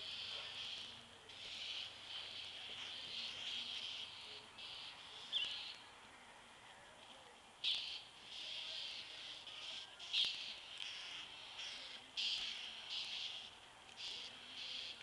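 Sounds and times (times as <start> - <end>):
steady high buzzing: 0.0 - 6.2, 7.5 - 15.0
bird calling: 7.6 - 15.0.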